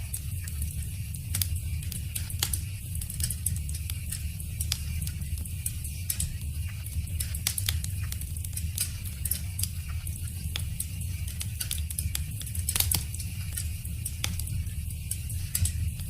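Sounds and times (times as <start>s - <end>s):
low rumble of flames: 0.0s - 16.0s
wood fire crackling: 0.0s - 16.0s.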